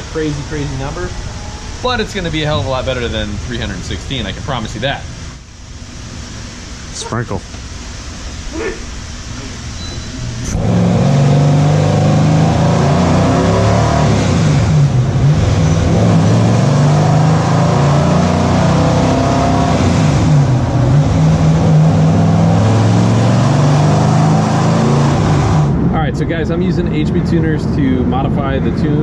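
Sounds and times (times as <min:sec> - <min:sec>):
engine revving hard: 0:10.4 - 0:25.8.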